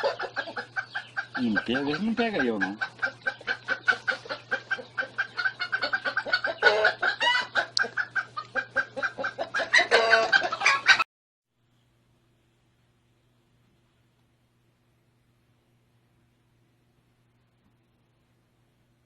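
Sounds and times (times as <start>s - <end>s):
chickens clucking: 0.0s - 11.0s
chickens squawking: 0.0s - 11.0s
steady low hum: 11.6s - 19.0s.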